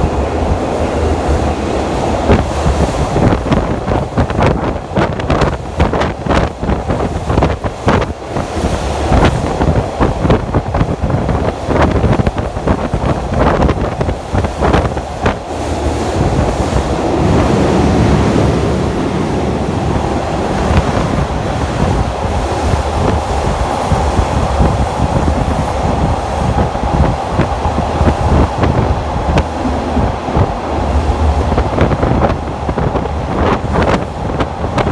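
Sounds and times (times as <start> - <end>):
train rumble: 15.0 - 34.9
wind buffeting microphone: 20.0 - 34.9
faint held tone: 27.9 - 34.9.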